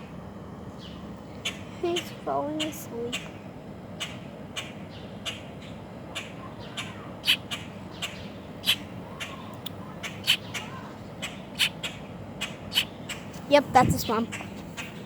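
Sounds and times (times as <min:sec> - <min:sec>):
small bird chirping: 0:04.0 - 0:15.0.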